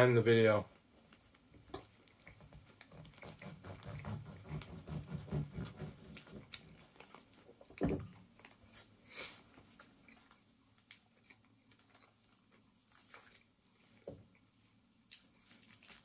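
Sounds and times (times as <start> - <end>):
person chewing: 6.1 - 8.8, 9.7 - 16.0.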